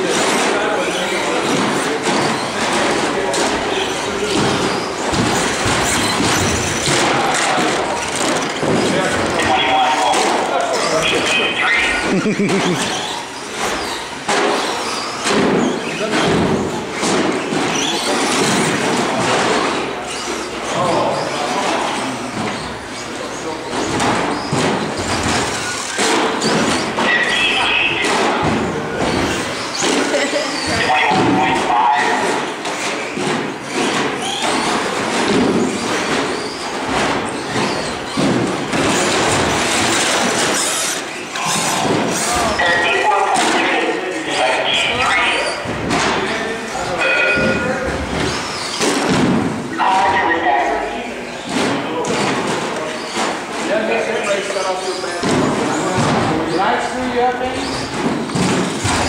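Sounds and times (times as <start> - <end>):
rc trucks racing: 0.0 - 49.0
trucks landing with thuds: 0.1 - 11.4, 21.4 - 43.8.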